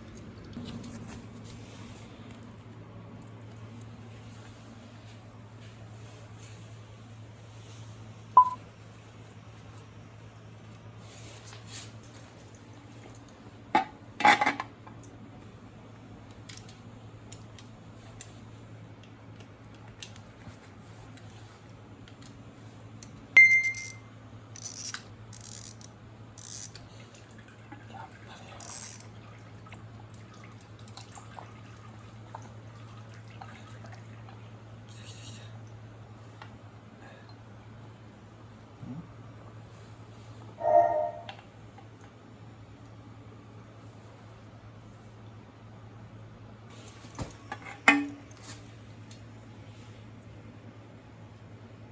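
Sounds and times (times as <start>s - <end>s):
metal tools clinking: 23.4s - 24.0s
steady low hum: 34.2s - 51.9s.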